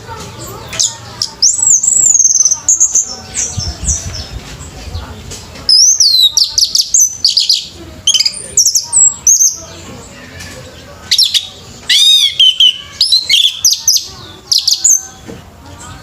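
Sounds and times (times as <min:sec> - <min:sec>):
thrush singing whistled notes: 0:00.8 - 0:03.7, 0:05.7 - 0:09.6, 0:11.1 - 0:15.2.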